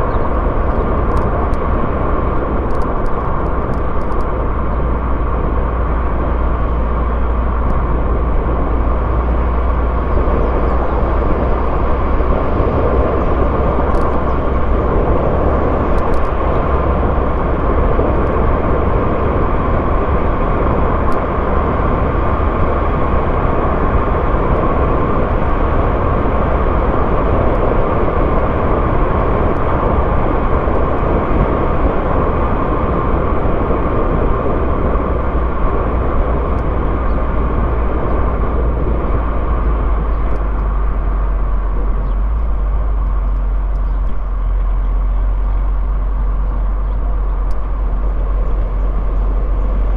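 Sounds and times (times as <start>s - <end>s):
car engine and tyre noise: 0.0s - 49.9s
deep low drone: 0.0s - 49.9s
faint ticks: 47.4s - 47.7s.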